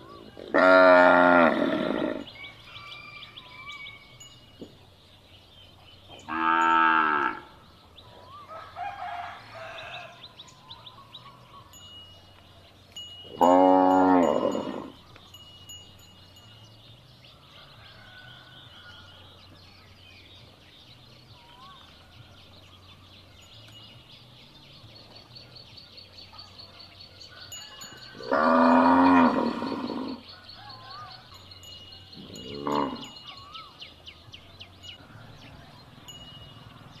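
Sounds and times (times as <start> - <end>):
cow mooing: 0.5 - 2.3, 6.3 - 7.6, 13.3 - 15.0, 28.2 - 30.2, 32.2 - 33.2.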